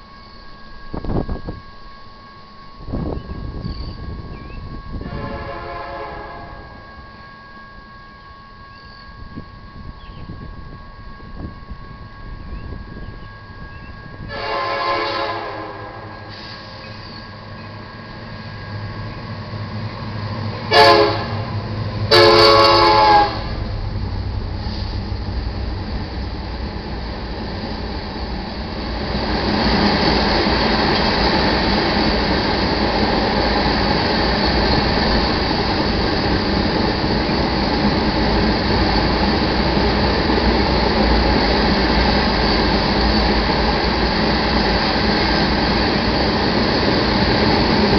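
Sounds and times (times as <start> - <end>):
train passing with rumble: 0.0 - 47.9
locomotive horn blasts: 4.6 - 7.0, 14.2 - 16.4, 20.6 - 23.7.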